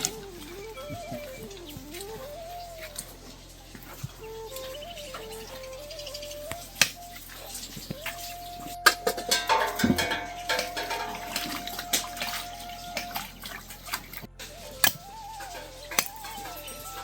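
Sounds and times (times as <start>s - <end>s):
water splashing: 0.0s - 16.7s
background music steady note: 0.0s - 17.0s
knocks and clinks: 8.9s - 12.4s.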